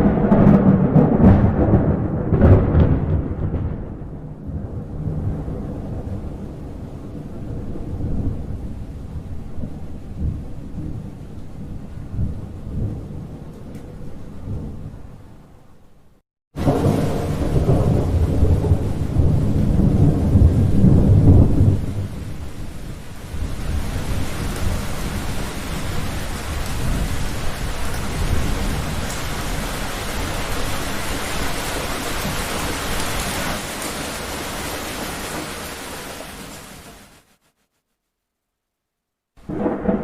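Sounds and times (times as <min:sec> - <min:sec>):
thunder rumble: 0:00.0 - 0:15.5, 0:16.6 - 0:37.0, 0:39.4 - 0:40.0
rain hiss: 0:16.6 - 0:37.4.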